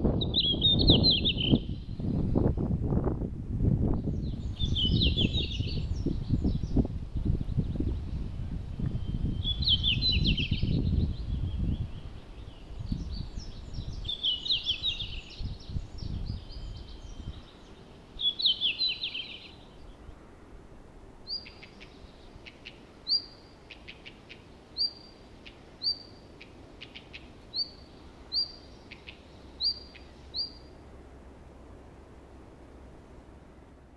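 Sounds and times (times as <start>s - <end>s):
bird song phrases: 0.0s - 2.2s, 3.9s - 20.2s, 21.3s - 30.8s
high rising bird call: 0.2s - 2.1s, 9.0s - 20.0s, 21.3s - 30.7s.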